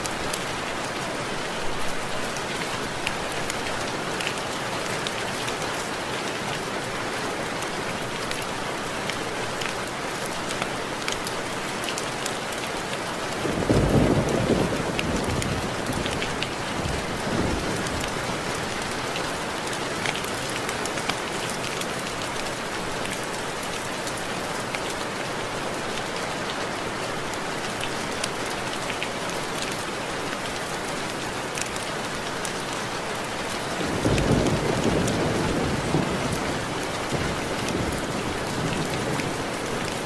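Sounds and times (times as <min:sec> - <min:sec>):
rain drops on window glass: 0:00.0 - 0:40.0
thunder rumble: 0:13.5 - 0:18.1, 0:33.9 - 0:40.0.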